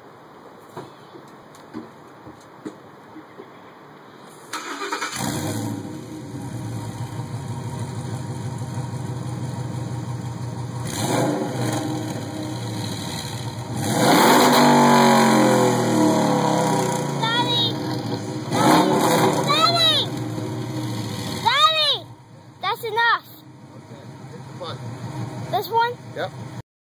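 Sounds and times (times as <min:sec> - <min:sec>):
engine cranking and starting: 0:04.5 - 0:05.8
engine idling: 0:04.6 - 0:11.0, 0:16.4 - 0:26.6
engine revving: 0:04.6 - 0:22.0.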